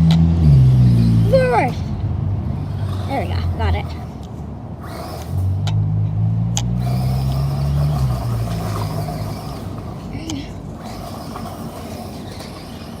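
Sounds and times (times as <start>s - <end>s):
toy truck motor humming: 0.0s - 13.0s.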